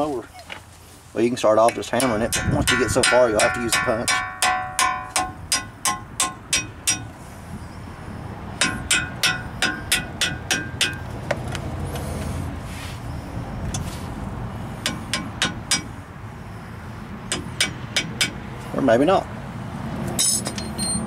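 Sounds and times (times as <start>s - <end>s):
hammer striking metal: 1.6s - 7.1s, 8.6s - 11.0s, 14.8s - 15.9s, 17.3s - 18.4s.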